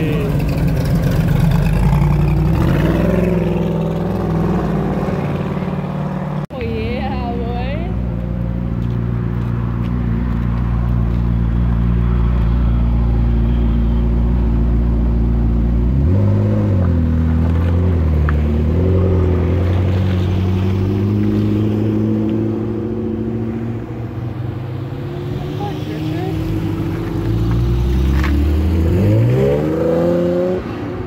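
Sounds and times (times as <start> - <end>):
car engine revving: 0.0 - 6.5, 14.4 - 30.8.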